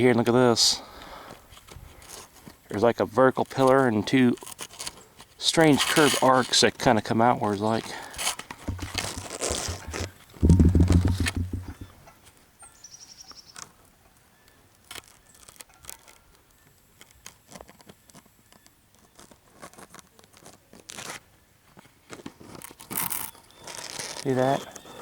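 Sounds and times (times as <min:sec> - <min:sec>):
low rumble on microphone: 0:08.7 - 0:11.9
faint crackles and clicks: 0:14.4 - 0:24.8.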